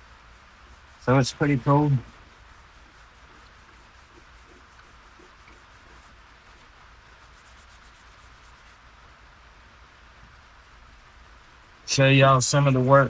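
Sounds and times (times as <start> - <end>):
wet sanding plastic by hand: 0.0 - 9.0.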